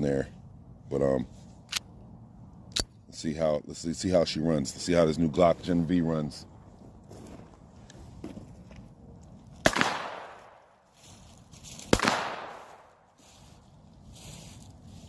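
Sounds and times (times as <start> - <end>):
pistol shots with echo: 9.6 - 10.6, 11.9 - 12.9.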